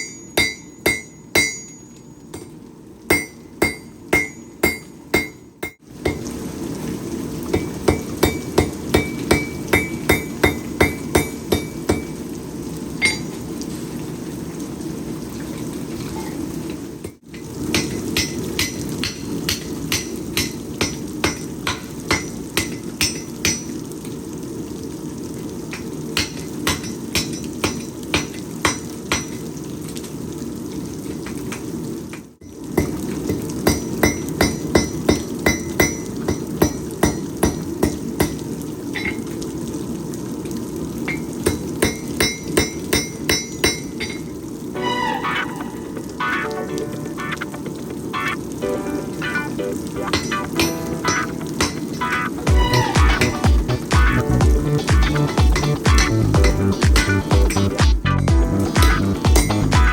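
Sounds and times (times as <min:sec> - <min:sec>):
hammer striking steel on anvil: 0:00.0 - 0:06.3, 0:07.6 - 0:12.2, 0:13.0 - 0:13.3, 0:17.7 - 0:23.6, 0:33.7 - 0:38.4, 0:41.5 - 0:44.2, 0:50.1 - 0:51.8, 0:59.4 - 0:59.7.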